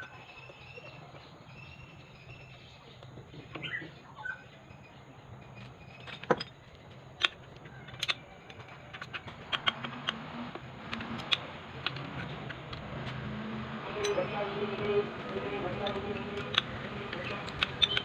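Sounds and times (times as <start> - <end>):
tools clicking and tapping on workbench: 6.0 - 6.6, 7.2 - 13.4, 14.0 - 18.0.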